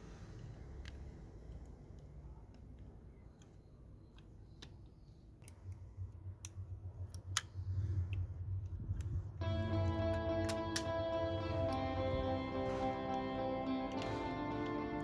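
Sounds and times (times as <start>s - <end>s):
small plastic parts clicking: 0.3s - 9.2s
low hum: 5.0s - 15.0s
guitar music: 9.4s - 15.0s.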